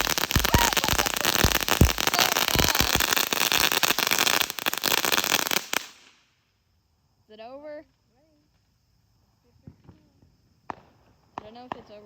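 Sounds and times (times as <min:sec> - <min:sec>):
deep firework pops: 0:00.0 - 0:06.1, 0:09.6 - 0:11.9
firework fountain crackling: 0:00.0 - 0:06.2.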